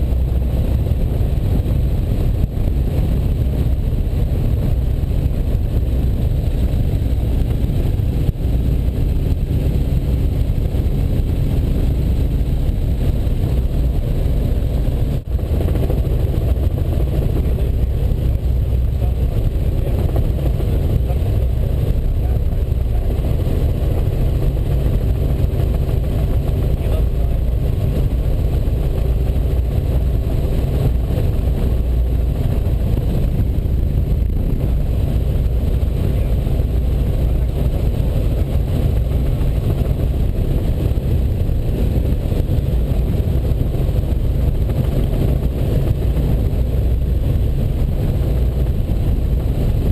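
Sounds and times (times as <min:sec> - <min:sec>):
helicopter engine and rotors droning: 0:00.0 - 0:49.9.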